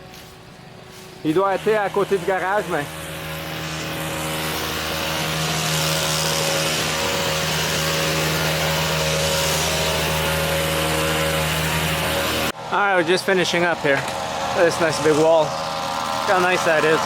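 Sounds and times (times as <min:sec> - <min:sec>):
small petrol engine running: 0:01.3 - 0:17.0.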